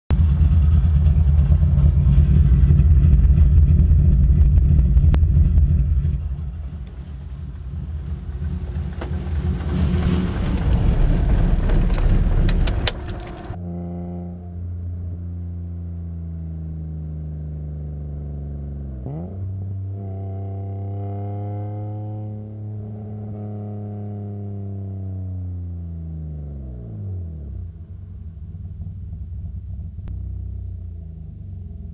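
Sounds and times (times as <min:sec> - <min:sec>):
car engine idling: 0:00.1 - 0:13.6, 0:27.4 - 0:31.9.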